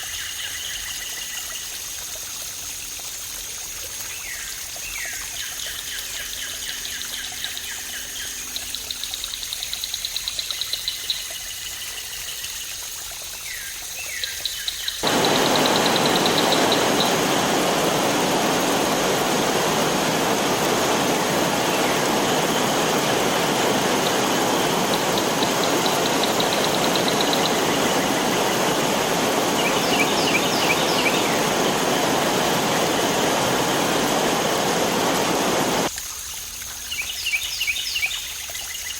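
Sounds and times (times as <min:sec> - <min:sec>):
faint running water: 0:00.0 - 0:38.9
birds trilling: 0:15.0 - 0:35.9
waterfall rushing: 0:15.0 - 0:35.9.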